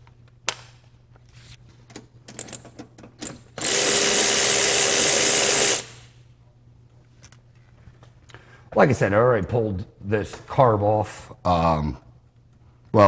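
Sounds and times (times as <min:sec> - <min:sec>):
tools and parts clicking: 0:01.9 - 0:06.1
power tool running: 0:03.6 - 0:06.1.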